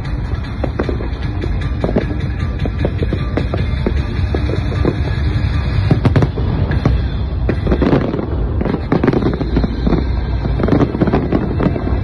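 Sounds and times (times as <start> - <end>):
fireworks bangs and crackles: 0.0 - 12.0
steady low rumble: 0.0 - 12.0.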